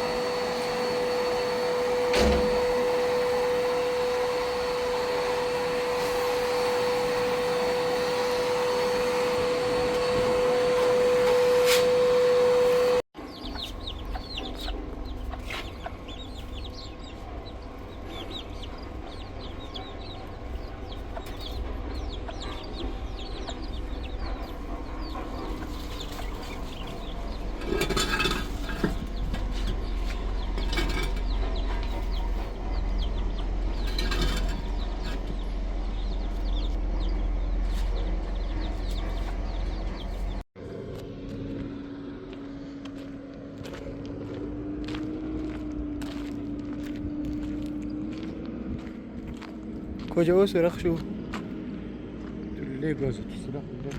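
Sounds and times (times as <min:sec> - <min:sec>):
steady machine hum: 0:00.0 - 0:53.9
small birds chirping: 0:13.2 - 0:27.9, 0:28.5 - 0:40.4
chickens clucking: 0:13.3 - 0:40.4
low rumble: 0:13.4 - 0:53.9.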